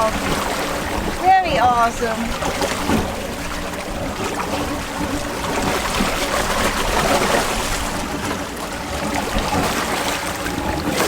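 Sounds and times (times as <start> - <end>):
water rushing along hull: 0.0 - 11.0.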